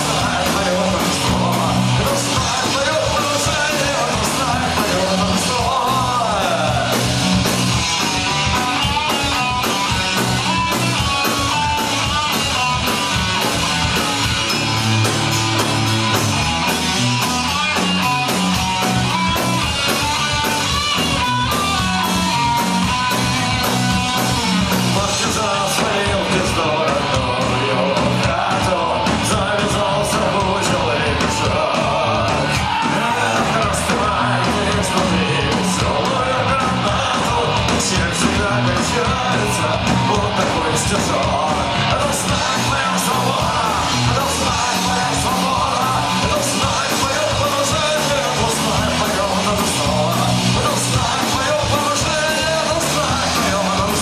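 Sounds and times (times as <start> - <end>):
person singing: 0.0 - 7.2, 24.7 - 54.0
bass guitar: 0.0 - 54.0
drums with cymbals: 0.0 - 54.0
electric guitars: 0.0 - 54.0.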